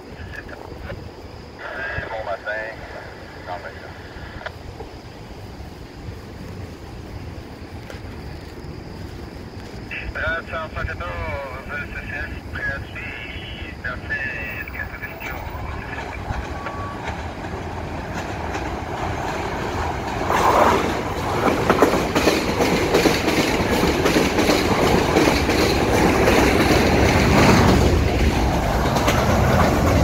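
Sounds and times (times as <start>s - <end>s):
train rumbling past: 0.0s - 30.0s
wheels clicking on rails: 14.6s - 30.0s.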